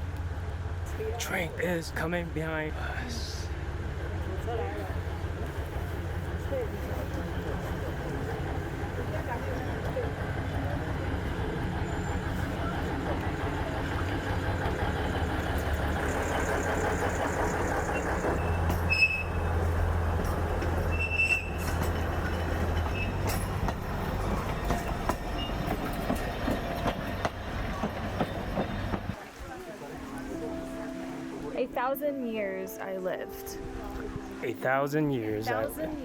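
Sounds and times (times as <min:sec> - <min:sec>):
train engine hum: 0:00.0 - 0:36.0
train wheels clicking: 0:05.3 - 0:29.2
wheel squeals: 0:15.2 - 0:26.6.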